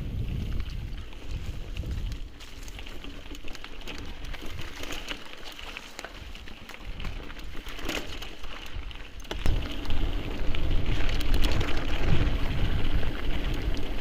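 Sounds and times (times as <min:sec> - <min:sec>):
wind rumble on microphone: 0:00.0 - 0:05.0, 0:08.7 - 0:14.0
bike tyres crunching on gravel: 0:00.0 - 0:14.0
small clicks and rattles: 0:00.5 - 0:14.0.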